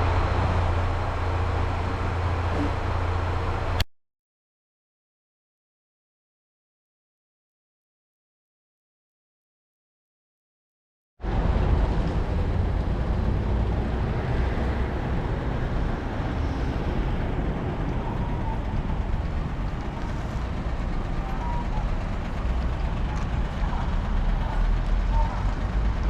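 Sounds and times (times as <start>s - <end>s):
moving vehicle rumble: 0.0s - 3.9s, 11.2s - 26.0s.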